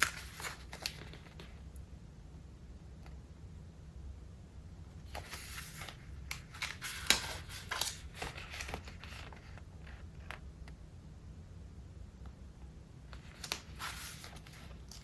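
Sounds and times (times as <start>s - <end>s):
notebook pages turning: 0.0s - 1.6s, 5.1s - 10.4s, 13.1s - 15.0s.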